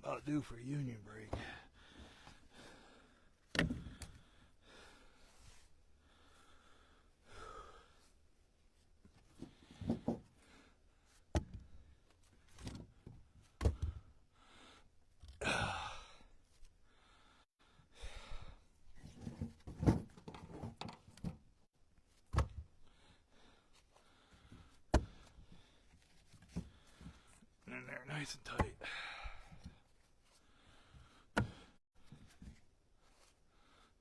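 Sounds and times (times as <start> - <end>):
person breathing heavily and sighing: 1.3 - 8.2, 13.8 - 18.7, 26.6 - 31.8.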